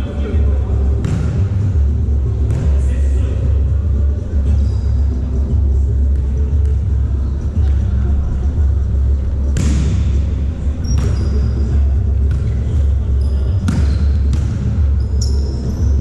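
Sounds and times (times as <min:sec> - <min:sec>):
steady low rumble: 0:00.2 - 0:10.8
volleyball struck hard: 0:09.6 - 0:10.1
sneaker squeaks on court floor: 0:10.8 - 0:11.7, 0:13.2 - 0:16.0.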